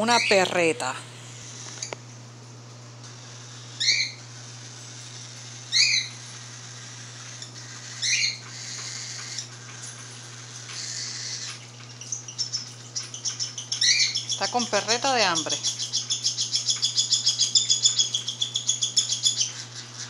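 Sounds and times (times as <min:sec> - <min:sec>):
bird chick begging calls: 0:03.8 - 0:04.2, 0:05.7 - 0:06.2, 0:10.8 - 0:20.0.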